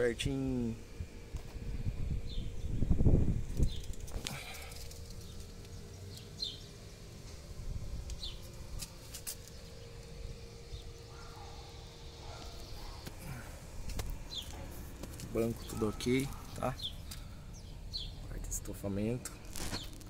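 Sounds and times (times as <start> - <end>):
faint steady hum: 0.0 - 20.0
bird chirping: 5.1 - 7.2, 14.3 - 14.7, 15.4 - 18.3.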